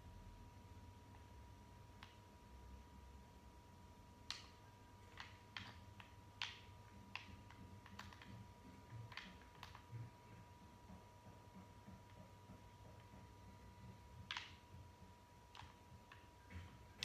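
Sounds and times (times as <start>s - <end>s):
faint irregular clicks and taps: 1.9s - 2.3s, 4.2s - 17.0s.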